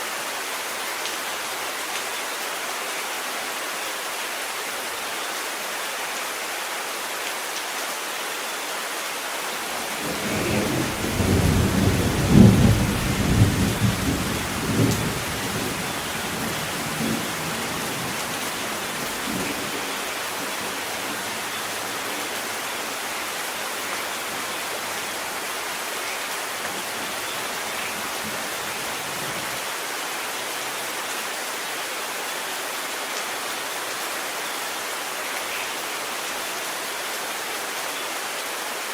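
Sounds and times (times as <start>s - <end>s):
heavy rain: 0.0s - 38.9s
thunder rumbling: 9.8s - 22.4s.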